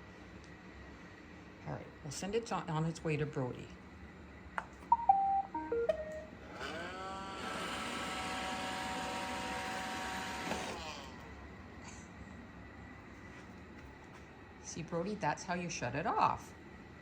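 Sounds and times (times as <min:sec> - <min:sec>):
robot vacuum start-up beep tune: 0:04.9 - 0:06.3
vacuum motor whine: 0:06.1 - 0:11.6.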